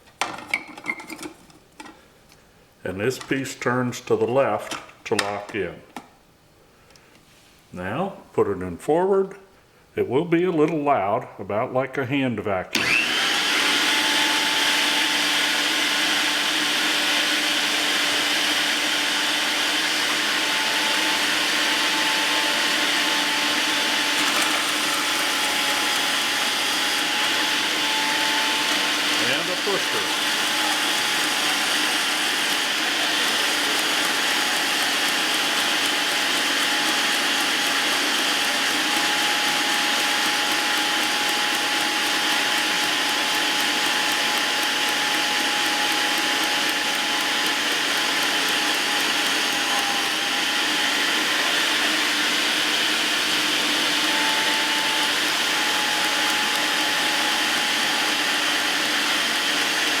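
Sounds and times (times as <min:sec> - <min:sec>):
meat grinder motor whirring: 0:12.8 - 1:00.0.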